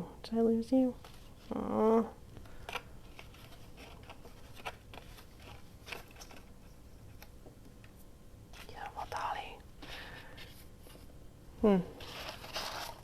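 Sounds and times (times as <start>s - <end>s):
paper rustling and ticking: 2.4s - 7.3s.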